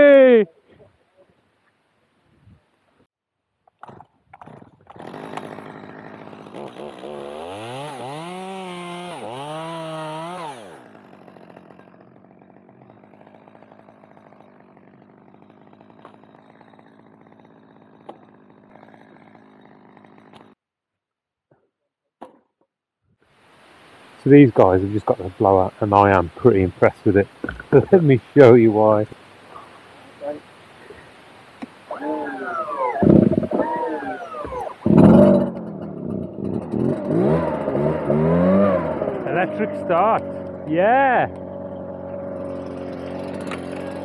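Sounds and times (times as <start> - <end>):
chainsaw running: 4.9 - 20.6, 31.9 - 44.0.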